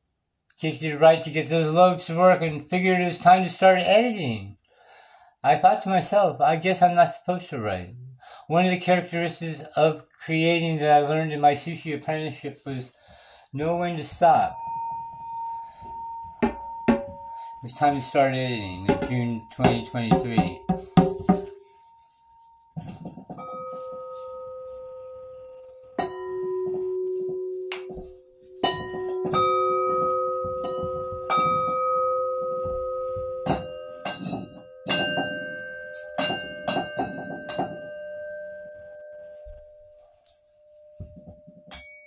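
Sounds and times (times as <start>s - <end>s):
bronze chime bells ringing: 12.5s - 42.0s.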